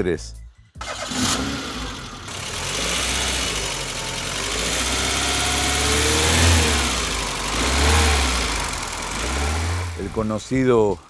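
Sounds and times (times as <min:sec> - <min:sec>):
car engine revving: 0:00.8 - 0:11.0.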